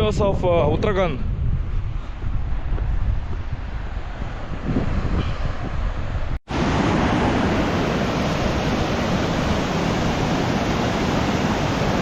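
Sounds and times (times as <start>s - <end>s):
waterfall roaring: 6.5s - 12.0s.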